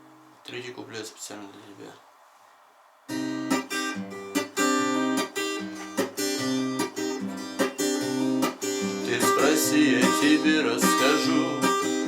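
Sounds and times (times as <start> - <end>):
acoustic guitar strumming: 3.1 - 12.0.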